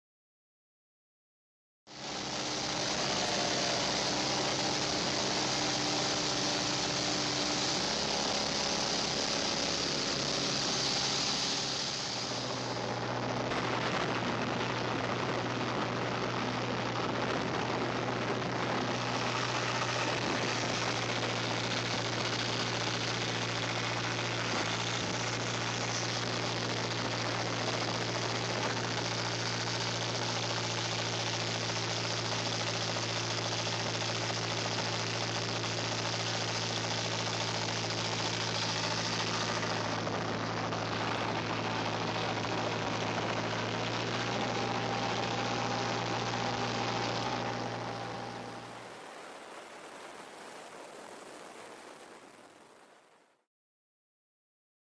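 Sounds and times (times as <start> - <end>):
diesel engine droning: 1.9 - 49.5.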